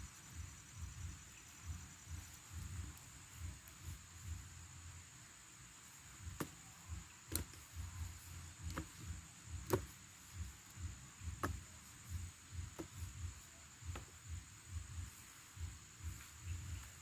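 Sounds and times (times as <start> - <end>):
soft low thumps: 0.0 - 4.9, 5.9 - 17.0
high-pitched insect drone: 0.0 - 9.6.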